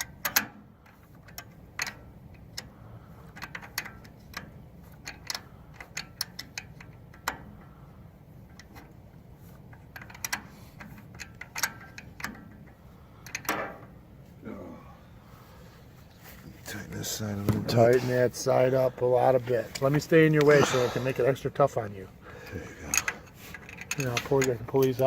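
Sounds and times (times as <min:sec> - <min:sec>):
wrench clicking on metal bolt: 0:00.0 - 0:02.7, 0:03.3 - 0:07.6, 0:09.7 - 0:12.6.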